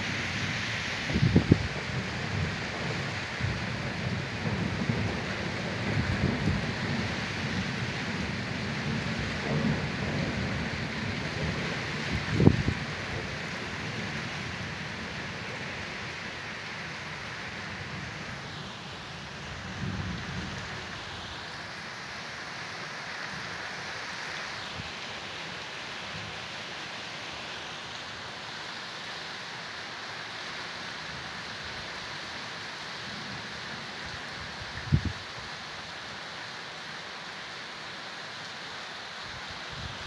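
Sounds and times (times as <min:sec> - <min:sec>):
heavy rain falling: 0:00.0 - 0:40.0
thunder rumbling: 0:01.1 - 0:15.6.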